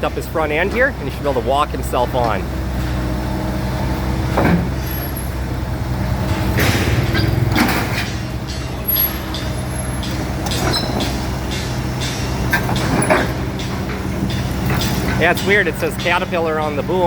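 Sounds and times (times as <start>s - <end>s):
diesel engine under load: 0.0s - 17.0s
metal clanking: 4.3s - 17.0s.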